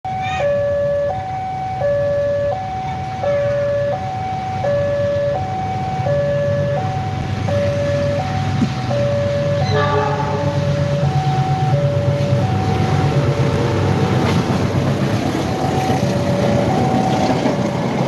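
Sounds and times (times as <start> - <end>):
level crossing two-tone alarm: 0.1 - 13.6.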